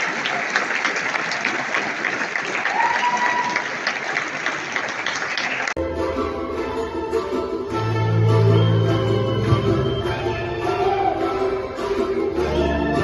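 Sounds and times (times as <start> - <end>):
audience applauding: 0.0 - 5.8
music with held notes: 5.8 - 13.0.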